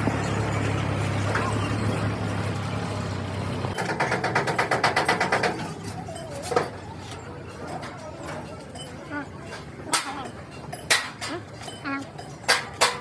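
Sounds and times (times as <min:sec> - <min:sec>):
truck engine idling: 0:00.0 - 0:13.0
rapid mechanical rattle: 0:03.7 - 0:06.1.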